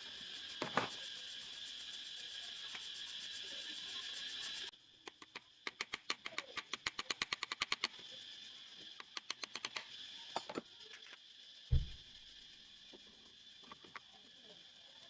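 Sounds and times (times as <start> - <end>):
steady high hiss: 0.0 - 15.0
rapid mechanical clicks: 4.6 - 10.3.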